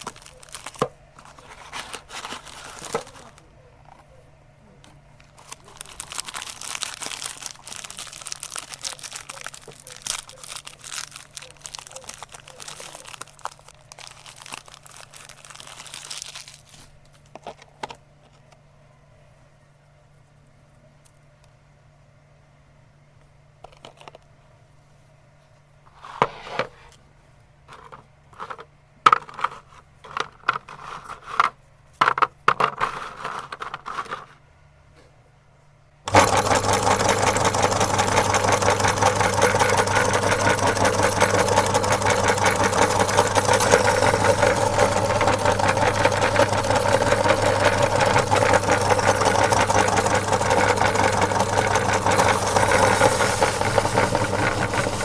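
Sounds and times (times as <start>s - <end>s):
meat grinder motor humming: 5.5s - 13.5s, 36.1s - 55.0s.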